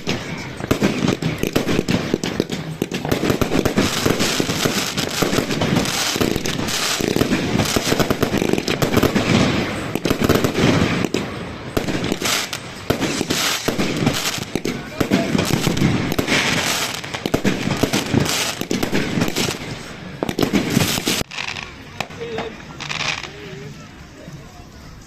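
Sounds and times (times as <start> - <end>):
fireworks bangs and crackles: 0.0 - 24.3.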